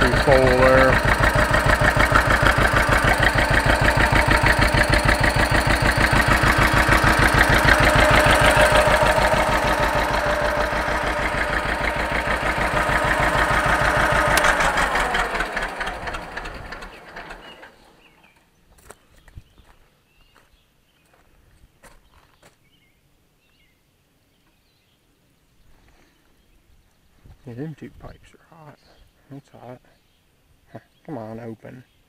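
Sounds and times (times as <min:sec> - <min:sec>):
two-cylinder engine popping: 0:00.0 - 0:18.4.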